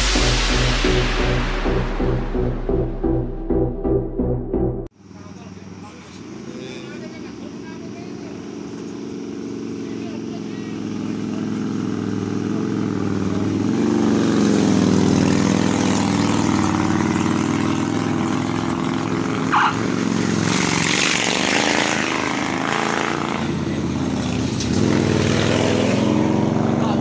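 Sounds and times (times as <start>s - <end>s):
brief high-pitched sound: 0.0s - 4.9s
motorcycle engines climbing hill: 5.2s - 27.0s.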